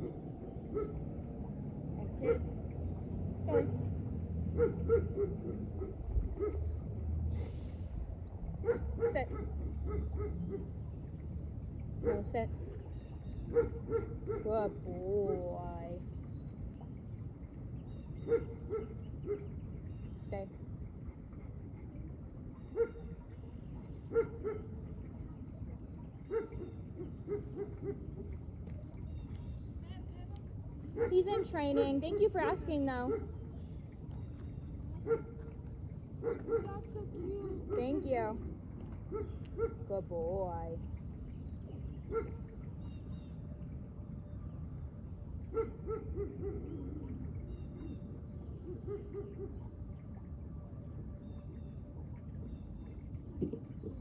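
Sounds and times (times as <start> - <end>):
dog barking: 0.0 - 1.0, 2.2 - 2.5, 3.5 - 3.8, 4.6 - 6.6, 8.6 - 10.7, 12.0 - 12.3, 13.5 - 14.5, 18.3 - 19.5, 22.7 - 23.1, 24.1 - 24.7, 26.3 - 28.1, 31.0 - 31.6, 33.0 - 33.4, 35.0 - 35.4, 36.2 - 38.1, 39.1 - 39.8, 42.1 - 42.4, 45.5 - 46.8, 48.7 - 49.6
small birds chirping: 8.6 - 20.9, 21.9 - 50.4.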